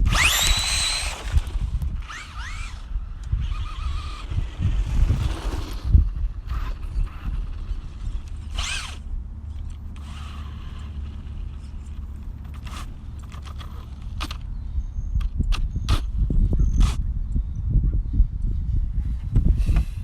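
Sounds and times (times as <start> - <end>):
electric motor whine: 0.0 - 14.4.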